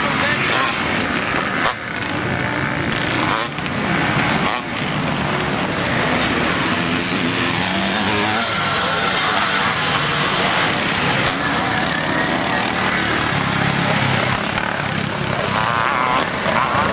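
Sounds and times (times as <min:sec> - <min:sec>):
motorcycle engines revving: 0:00.0 - 0:16.9.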